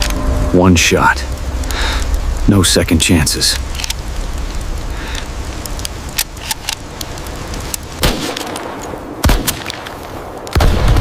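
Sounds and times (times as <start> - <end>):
blizzard wind rumbling: 0.0 - 11.0
sharp small clicks: 3.5 - 10.6.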